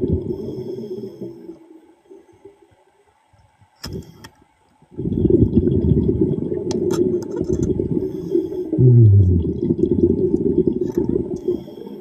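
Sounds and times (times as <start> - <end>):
underwater exhaled breath bubbling: 4.9 - 6.9, 7.6 - 12.0
low falling tone: 8.8 - 9.6.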